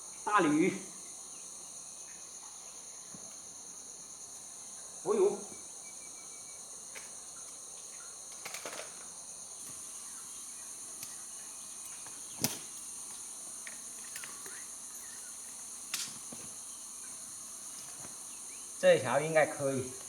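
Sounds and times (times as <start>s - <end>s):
crickets and insects chirping: 0.0s - 20.0s.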